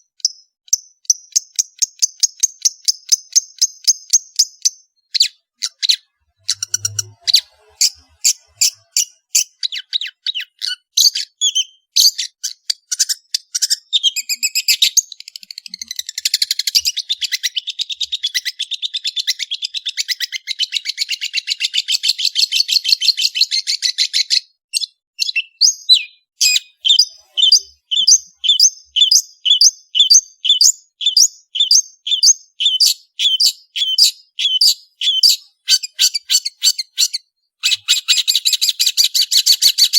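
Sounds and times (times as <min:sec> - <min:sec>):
bird singing rapid high notes: 0:03.0 - 0:18.6, 0:25.2 - 0:39.9.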